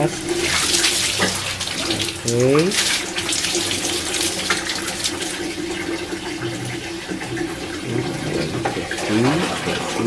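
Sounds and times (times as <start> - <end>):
water splashing on shower floor: 0.0 - 5.5.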